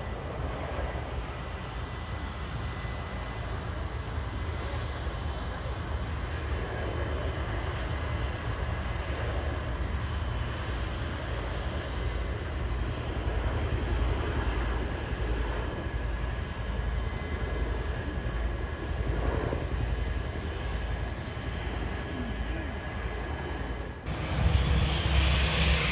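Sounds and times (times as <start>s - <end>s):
aircraft engines rumbling: 0.0s - 25.9s
thin steady whine: 16.9s - 25.9s.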